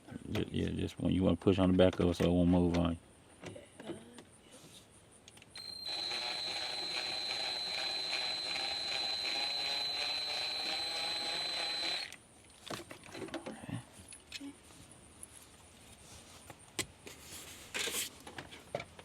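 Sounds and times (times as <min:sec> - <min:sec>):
cordless drill motor whining: 0:05.6 - 0:12.2.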